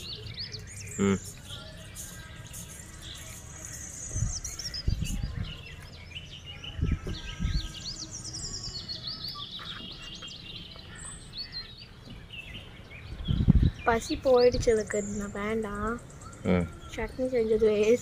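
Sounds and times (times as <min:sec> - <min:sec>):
birds chirping: 0:00.0 - 0:18.0
dull low thuds: 0:06.8 - 0:07.7, 0:13.0 - 0:13.8.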